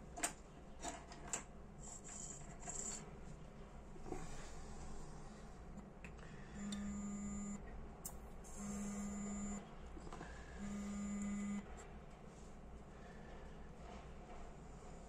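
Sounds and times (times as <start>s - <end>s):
low buzzing tone: 6.4s - 7.7s, 8.4s - 9.8s, 10.5s - 11.8s.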